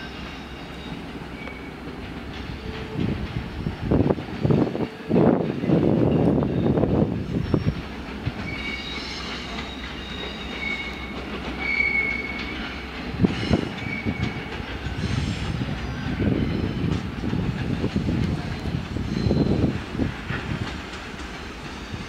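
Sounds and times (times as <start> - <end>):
freight wagons rumbling: 0.0 - 22.0
wheels clicking over rail joints: 0.2 - 6.8, 7.4 - 22.0
wheel flanges squealing: 5.8 - 20.7.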